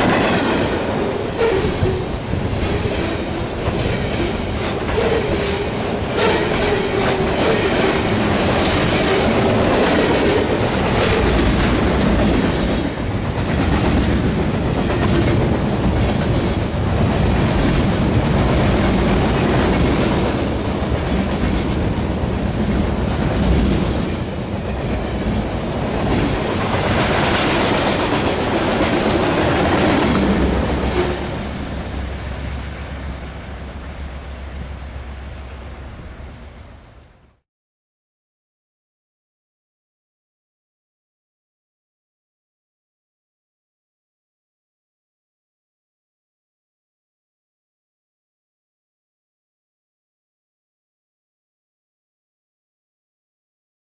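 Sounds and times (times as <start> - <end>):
train wheels clacking on rail joints: 0.0 - 31.8.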